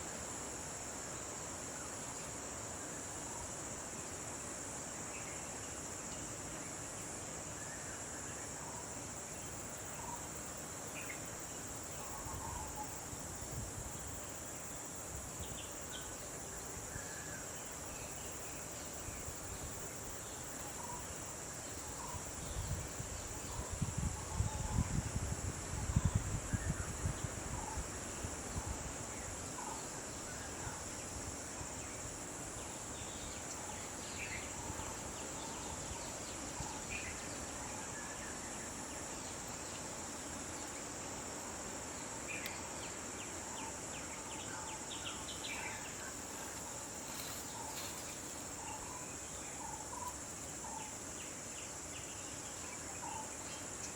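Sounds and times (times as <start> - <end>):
insects droning: 0.0 - 53.9.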